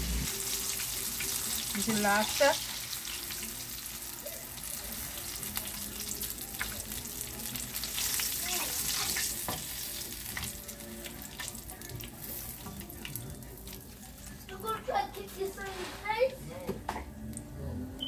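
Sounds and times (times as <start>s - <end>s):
chicken sizzling in hot oil: 0.0s - 14.7s
metal spatula scraping pan: 15.3s - 16.4s.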